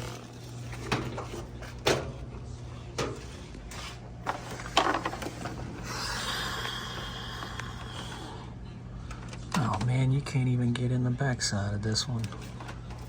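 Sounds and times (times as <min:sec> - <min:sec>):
steady low hum: 0:00.0 - 0:13.0
scraping and rustling: 0:03.0 - 0:05.8.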